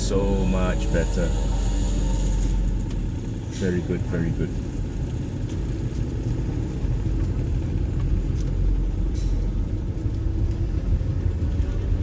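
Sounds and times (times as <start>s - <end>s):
car engine rumbling in cabin: 0.0s - 12.0s.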